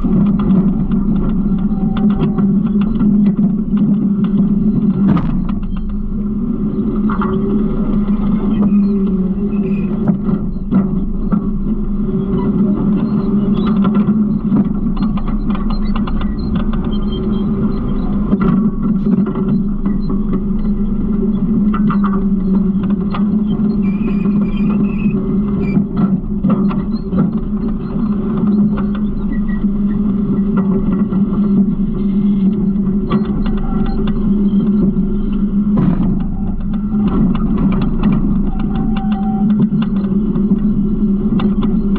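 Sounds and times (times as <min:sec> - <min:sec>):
rattles and knocks: 0:00.0 - 0:06.4, 0:35.1 - 0:40.6.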